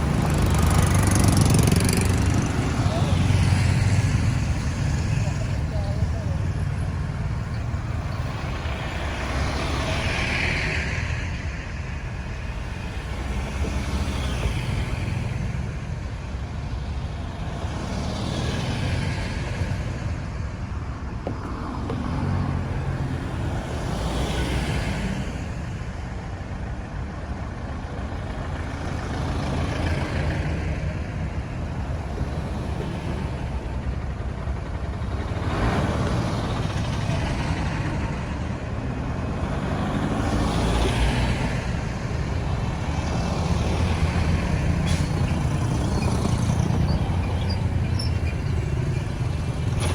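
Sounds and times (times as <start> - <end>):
vehicle passing close by: 0.0 - 7.2
traffic engine and tyre rumble: 0.0 - 49.9.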